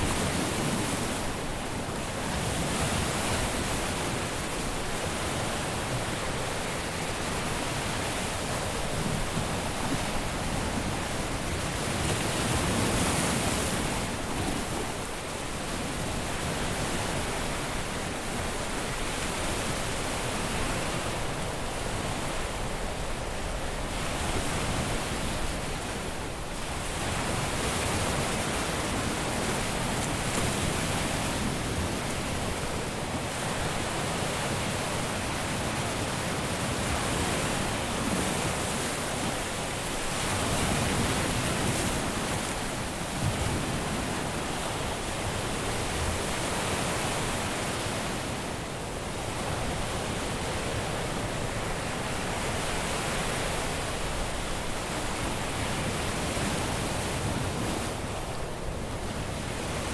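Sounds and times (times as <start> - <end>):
surf washing onto a beach: 0.0 - 59.9.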